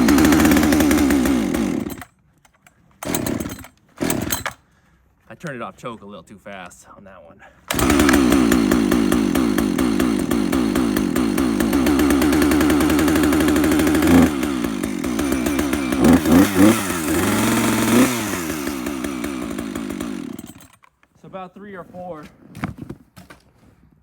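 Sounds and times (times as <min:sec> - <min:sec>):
chainsaw idling and revving: 0:00.0 - 0:02.1, 0:03.0 - 0:04.6, 0:07.7 - 0:20.8.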